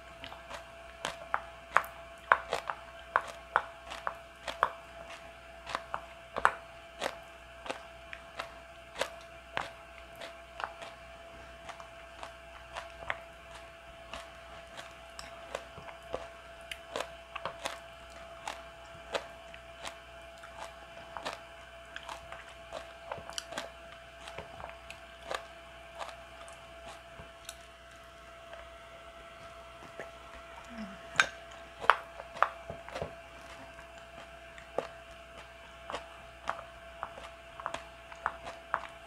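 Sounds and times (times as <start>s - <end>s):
chewing crunches and mouth clicks: 0.0s - 39.0s.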